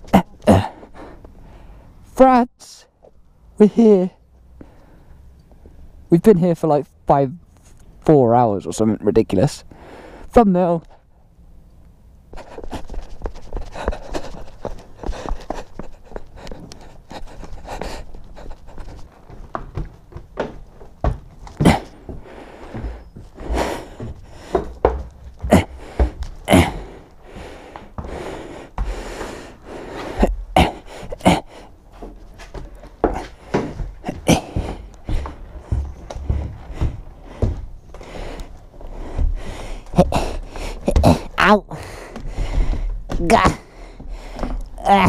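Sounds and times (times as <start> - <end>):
person breathing hard: 0.5 - 2.0, 9.7 - 10.3, 12.4 - 19.1, 21.6 - 44.8
handling knocks and thuds: 39.2 - 41.4.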